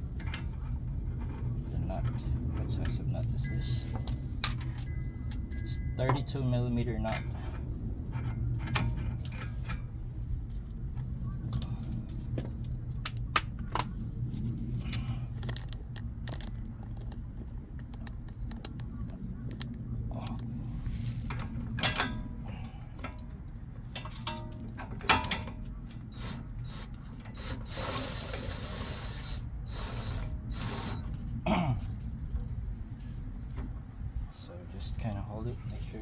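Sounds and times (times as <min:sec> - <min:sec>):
steady low hum: 0:00.0 - 0:36.0
metallic clicks and clinks: 0:03.2 - 0:06.7
sharp metal knocks: 0:03.9 - 0:06.5.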